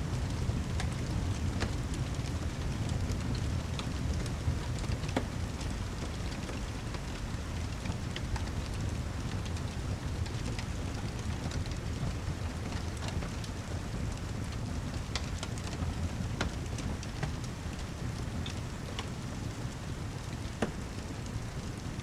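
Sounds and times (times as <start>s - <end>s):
heavy rain: 0.0s - 22.0s
fireplace crackling: 0.1s - 10.1s.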